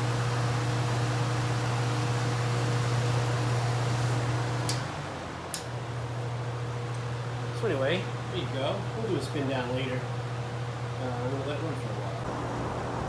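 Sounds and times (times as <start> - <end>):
electric fan running: 0.0 - 13.0
fan switch click: 4.6 - 4.9, 5.5 - 5.7.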